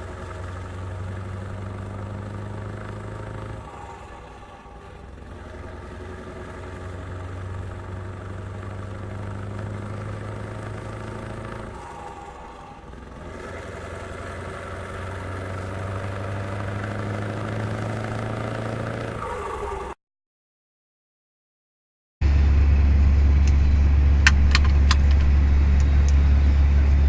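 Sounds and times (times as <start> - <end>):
diesel truck engine running: 0.0 - 20.0, 22.2 - 27.0.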